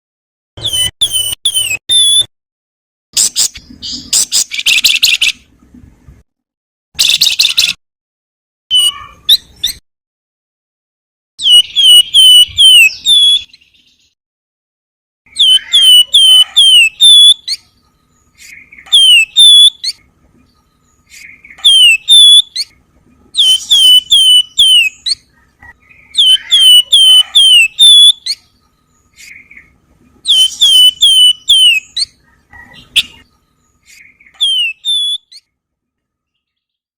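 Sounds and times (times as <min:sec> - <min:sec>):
bird singing falling whistles: 0:11.4 - 0:13.9, 0:15.3 - 0:17.6, 0:18.4 - 0:20.0, 0:21.1 - 0:22.7, 0:23.4 - 0:25.2, 0:26.1 - 0:28.4, 0:30.3 - 0:32.1, 0:34.2 - 0:35.4.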